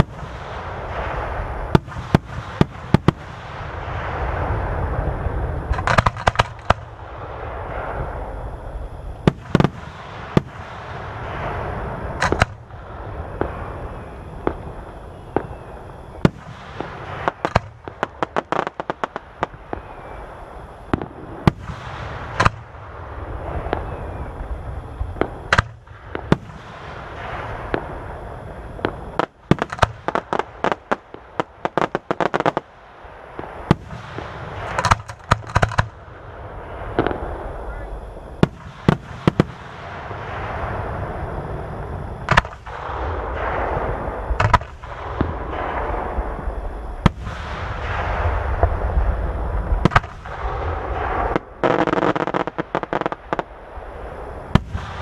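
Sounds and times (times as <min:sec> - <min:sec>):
continuous low rumble: 0:00.0 - 0:55.0
crackling firework bangs: 0:00.0 - 0:55.0
firework shell bursts: 0:05.7 - 0:07.0, 0:12.1 - 0:12.7, 0:33.6 - 0:36.0.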